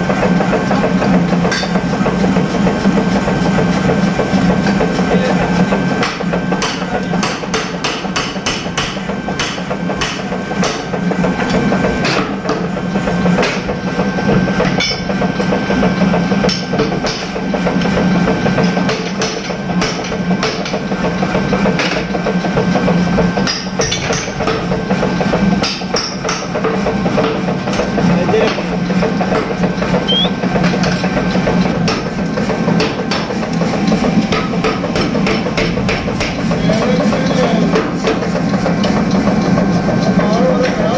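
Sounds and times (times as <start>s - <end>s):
machine hum: 29.6s - 40.9s.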